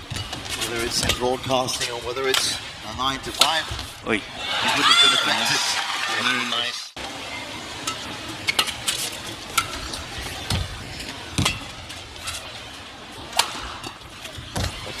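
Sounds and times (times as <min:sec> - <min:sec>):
arena background noise: 0:00.0 - 0:15.0
rackets striking shuttlecock: 0:13.3 - 0:14.7.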